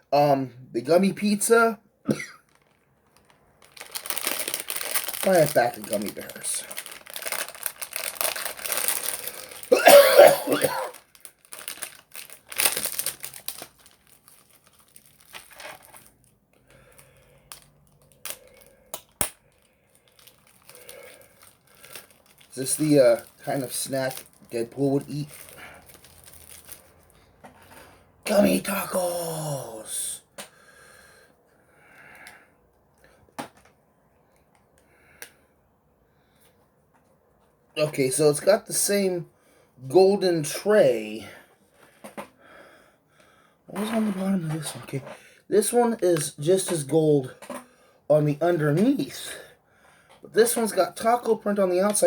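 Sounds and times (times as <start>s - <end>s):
plastic packaging crinkling: 2.4s - 27.2s.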